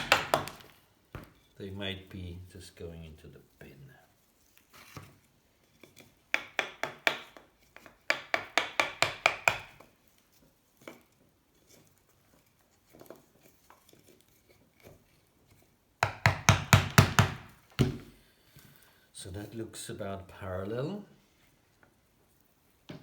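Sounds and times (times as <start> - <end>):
hammer tapping wooden wedges: 0.0 - 1.4, 5.8 - 9.9, 16.0 - 18.2.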